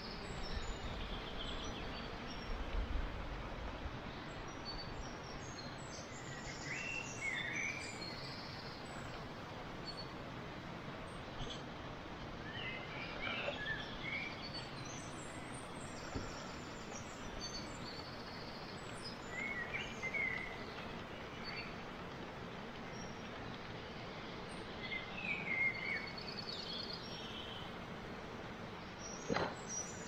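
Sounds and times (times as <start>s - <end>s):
steady outdoor hiss: 0.0s - 30.0s
birds chirping: 12.6s - 30.0s.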